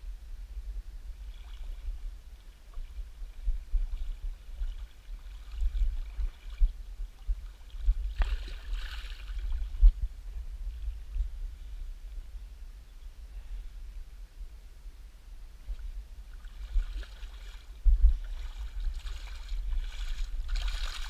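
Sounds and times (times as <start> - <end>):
wind buffeting microphone: 0.0 - 21.0
faint river water rushing: 15.6 - 21.0.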